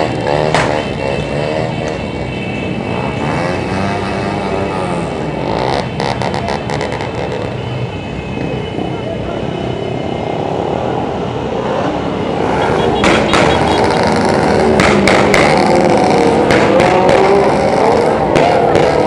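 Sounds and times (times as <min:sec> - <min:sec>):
motorcycles riding past: 0:11.0 - 0:19.0
sharp cracks: 0:14.7 - 0:17.5.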